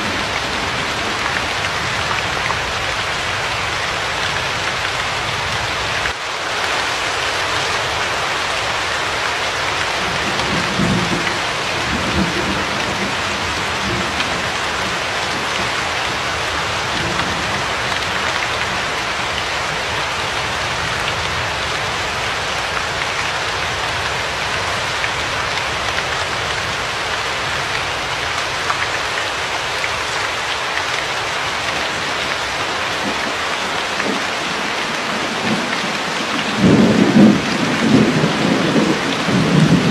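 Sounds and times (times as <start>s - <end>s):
steady rain hiss: 0.0s - 39.9s
thunder rumbling: 9.9s - 19.3s, 31.8s - 39.9s.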